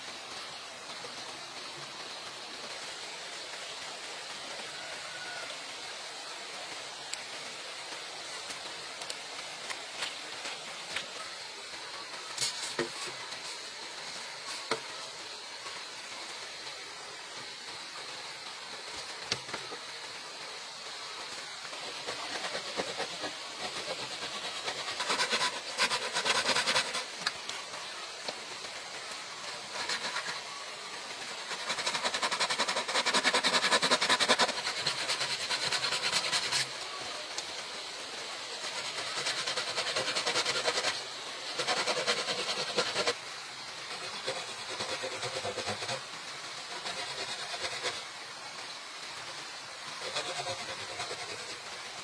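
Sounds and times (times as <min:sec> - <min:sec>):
hand tool rasping bamboo: 0:21.6 - 0:27.6, 0:29.4 - 0:30.6, 0:31.2 - 0:36.7, 0:38.3 - 0:43.2, 0:43.9 - 0:46.0, 0:46.6 - 0:48.0, 0:50.0 - 0:51.6.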